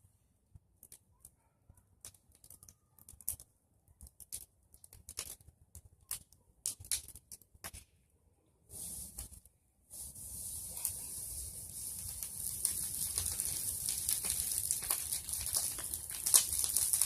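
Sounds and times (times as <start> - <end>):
bonfire crackling: 1.9 - 7.9, 8.7 - 17.0
sharp pops: 11.7 - 17.0.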